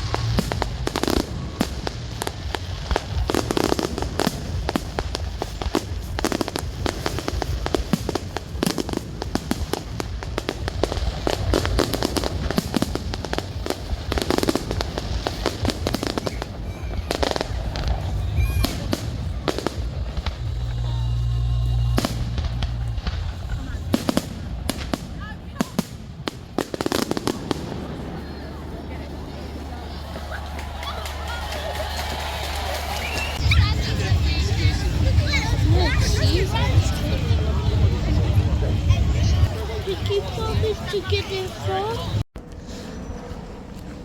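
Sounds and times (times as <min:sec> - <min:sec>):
heavy firework booms: 0:00.0 - 0:29.3
fireworks cracking and banging: 0:00.0 - 0:42.6.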